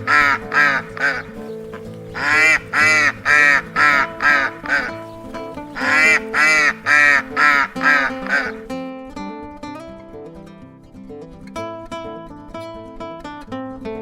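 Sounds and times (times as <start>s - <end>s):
waterfowl nasal calls: 0.0s - 8.6s
background music: 0.0s - 11.4s.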